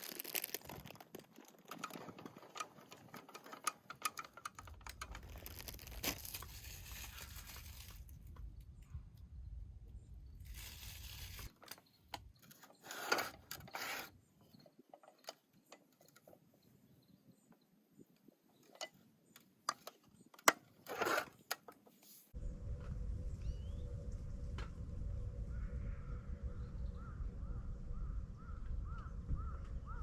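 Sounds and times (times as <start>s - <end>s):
objects clicking and knocking: 0.0s - 8.5s
low outdoor rumble: 4.7s - 11.5s, 22.4s - 30.0s.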